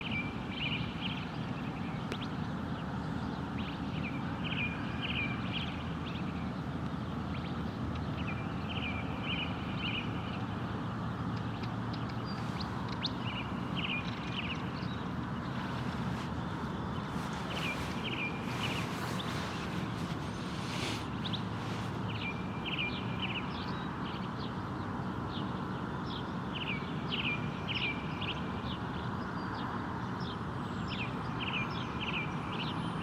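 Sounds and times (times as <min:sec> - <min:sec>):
songbird chirping: 0:00.0 - 0:32.8
low background rumble: 0:09.7 - 0:23.6.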